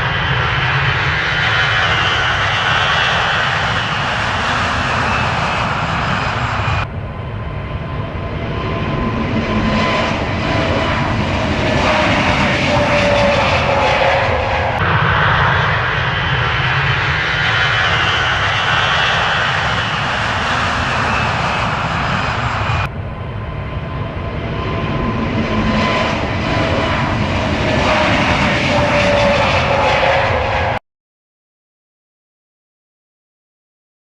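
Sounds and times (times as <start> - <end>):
jet engines roaring: 0.0 - 30.8.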